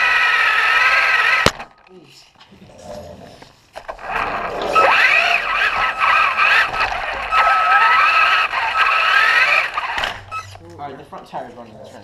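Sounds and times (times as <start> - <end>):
toy truck motor whining: 0.0 - 1.5, 3.9 - 10.6.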